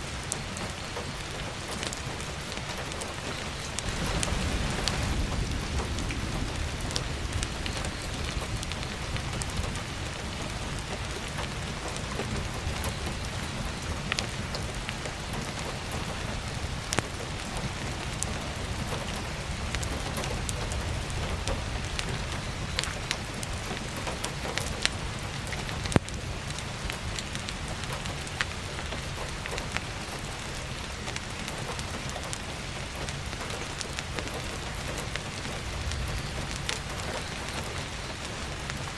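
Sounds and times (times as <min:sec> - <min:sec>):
firewood crackling and popping: 0:00.0 - 0:38.9
heavy rain: 0:00.0 - 0:38.9.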